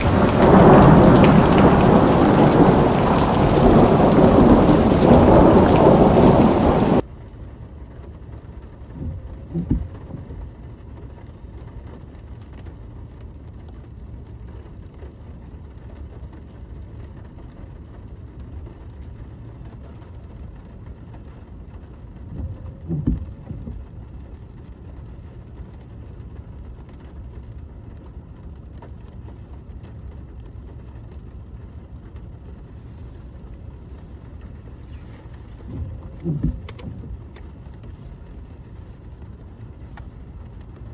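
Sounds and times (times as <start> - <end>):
heavy rain pouring: 0.0 - 7.0, 22.2 - 23.8, 32.7 - 40.7
low rumbles of thunder: 0.0 - 7.0, 22.2 - 23.9, 32.7 - 40.4
steady rain hiss: 0.0 - 7.0, 32.6 - 40.9.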